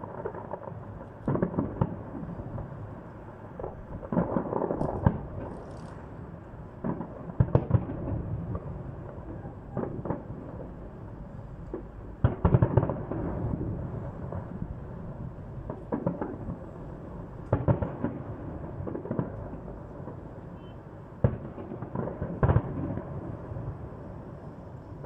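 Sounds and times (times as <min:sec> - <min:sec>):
continuous rumble: 0:00.0 - 0:25.0.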